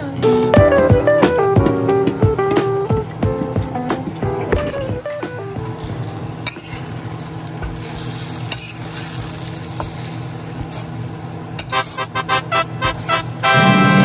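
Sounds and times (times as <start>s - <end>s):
garlic sizzling in a wok: 5.7s - 12.2s
spatula scraping: 5.8s - 10.9s.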